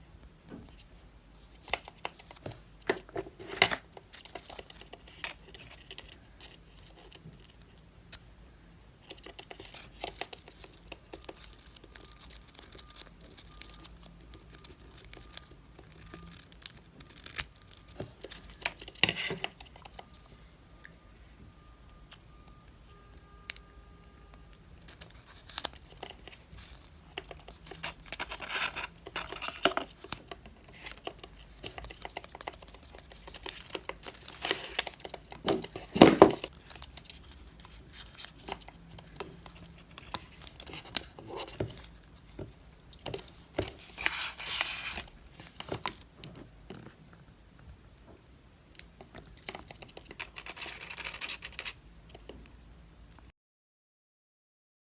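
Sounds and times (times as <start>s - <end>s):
packaging tearing and crinkling: 24.9s - 42.0s.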